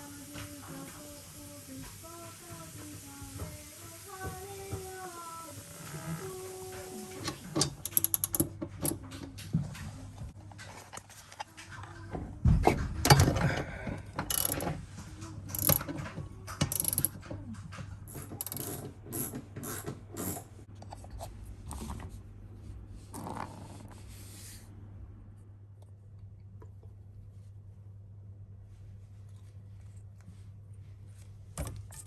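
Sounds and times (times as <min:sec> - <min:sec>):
ratchet clicking: 0:07.5 - 0:09.0, 0:14.3 - 0:14.8, 0:15.5 - 0:15.9, 0:16.6 - 0:17.2, 0:18.1 - 0:20.5
tools clattering: 0:07.6 - 0:09.0, 0:14.2 - 0:14.8, 0:15.5 - 0:16.0, 0:16.6 - 0:17.2, 0:18.1 - 0:21.0.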